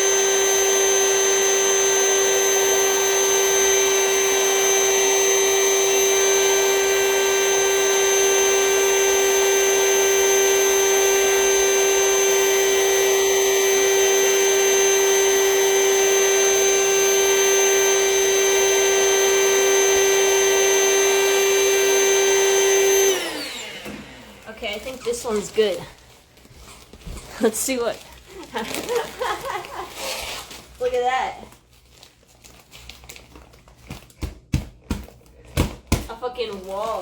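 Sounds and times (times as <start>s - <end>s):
vacuum whining: 0.0s - 26.1s.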